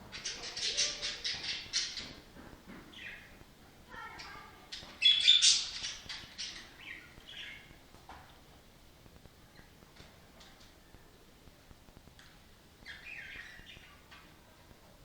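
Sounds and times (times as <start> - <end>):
budgerigar chirping: 5.0 - 7.7, 12.8 - 14.0.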